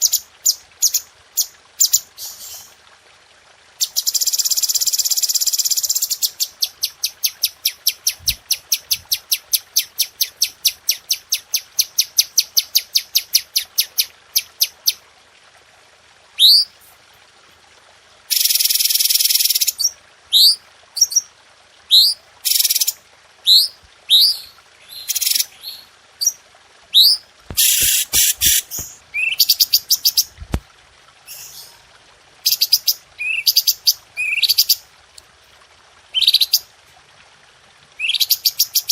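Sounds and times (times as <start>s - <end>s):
songbird calling: 21.9s - 30.3s, 32.5s - 34.8s, 38.0s - 38.9s.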